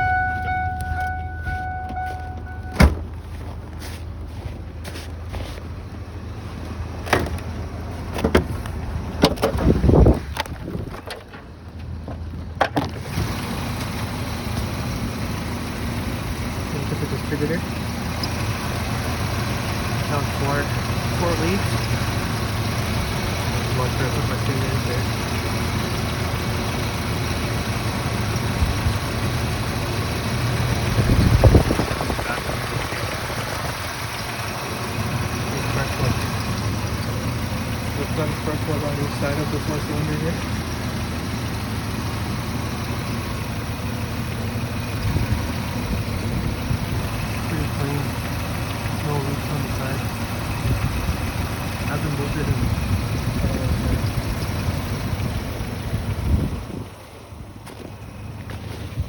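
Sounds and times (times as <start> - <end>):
engine idling: 0.0 - 59.0
heavy thud: 1.3 - 3.2
knocks and rattles: 7.0 - 13.1.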